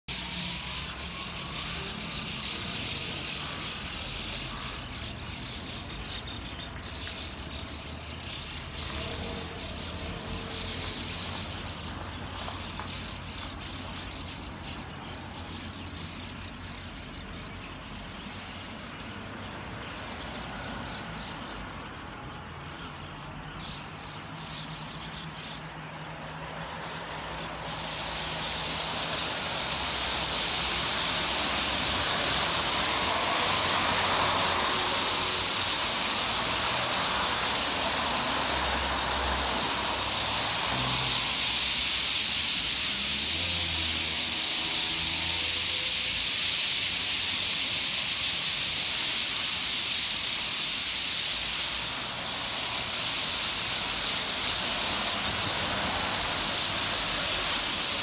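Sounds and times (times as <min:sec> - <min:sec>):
even hiss: 0:26.8 - 0:58.0.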